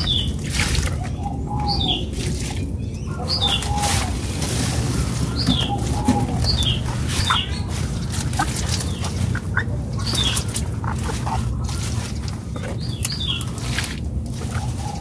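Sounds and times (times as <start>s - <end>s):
small bird chirping: 0.0s - 13.9s
steady low hum: 0.0s - 15.0s.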